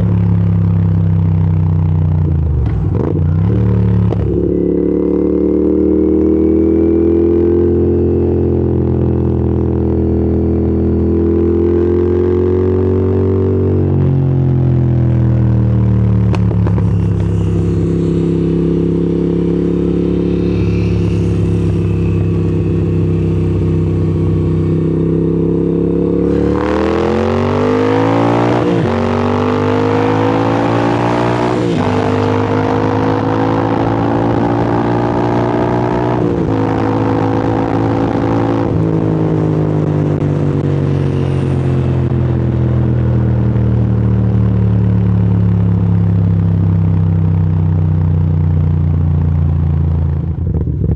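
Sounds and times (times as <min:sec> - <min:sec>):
motorcycle engine accelerating: 0:00.0 - 0:50.9.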